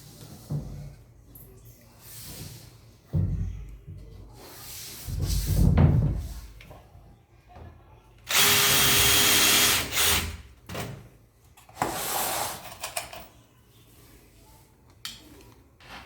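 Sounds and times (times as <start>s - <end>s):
power drill running: 8.3s - 10.4s.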